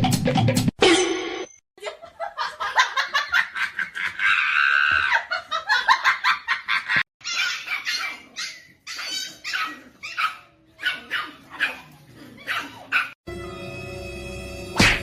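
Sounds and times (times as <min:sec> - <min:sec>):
dog barking and whining: 0:07.2 - 0:13.2.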